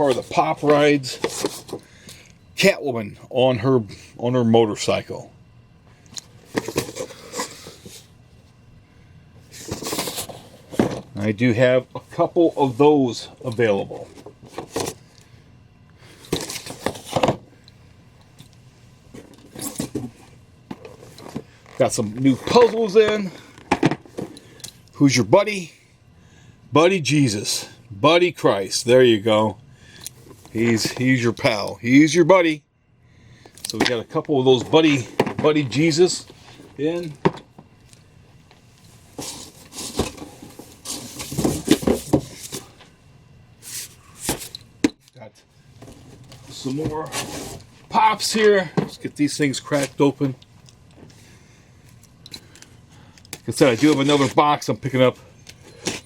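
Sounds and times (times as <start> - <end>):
cardboard boxes rustling: 0.0 - 1.8, 9.6 - 11.1, 16.3 - 17.4, 39.0 - 42.8, 45.8 - 47.7
items knocking and clattering: 9.6 - 11.2, 16.3 - 17.5, 22.4 - 24.4, 34.6 - 35.6, 37.2 - 37.7, 39.2 - 42.7.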